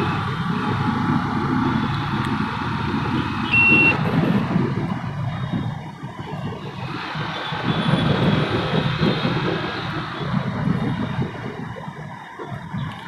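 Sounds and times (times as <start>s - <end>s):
motorcycle moving: 0.0s - 13.0s
road traffic: 0.0s - 13.0s
wind rumble on microphone: 0.0s - 13.0s
short high beep: 3.5s - 4.0s.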